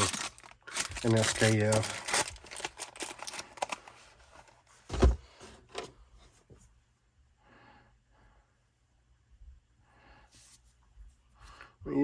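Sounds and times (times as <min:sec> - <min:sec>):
heavy thump: 0:04.9 - 0:05.4.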